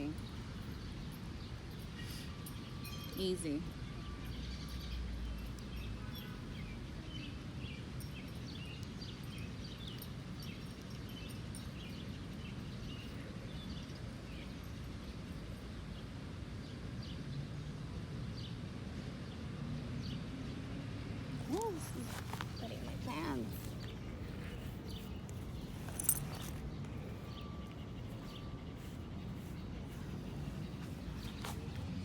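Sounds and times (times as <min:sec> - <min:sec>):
small birds chirping: 0:00.0 - 0:17.2, 0:21.3 - 0:32.0
low outdoor rumble: 0:17.7 - 0:32.0.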